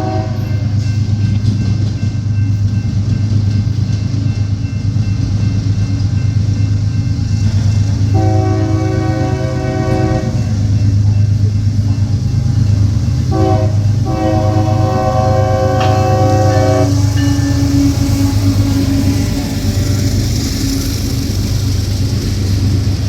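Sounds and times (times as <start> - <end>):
train horn blasts: 0.0 - 0.8, 8.1 - 10.6, 13.3 - 20.1
low rumble of passing train: 0.0 - 23.0.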